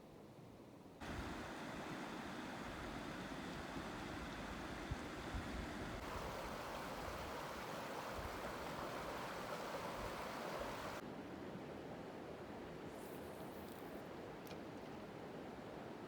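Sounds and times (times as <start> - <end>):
running water rushing: 1.0 - 11.0.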